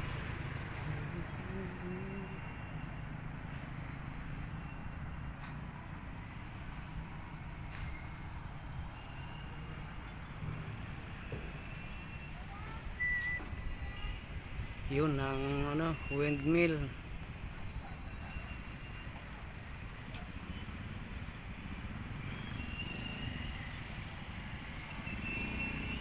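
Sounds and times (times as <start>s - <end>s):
motorcycle engine rumble: 0.0s - 16.2s
road noise: 0.0s - 26.0s.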